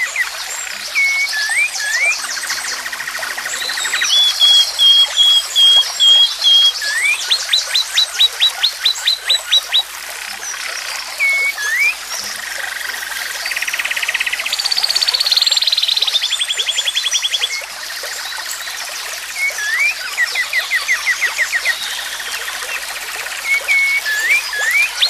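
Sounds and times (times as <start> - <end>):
animal calling high notes: 1.0 - 7.0
upswept notes: 1.7 - 6.0.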